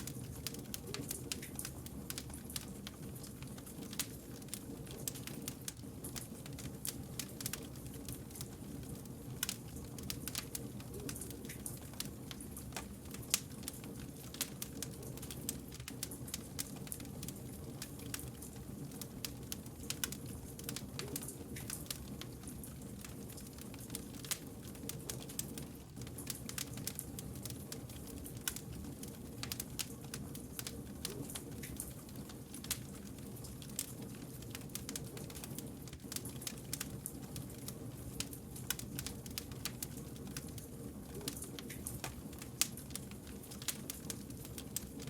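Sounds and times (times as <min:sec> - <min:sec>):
campfire crackling: 0:00.0 - 0:45.0.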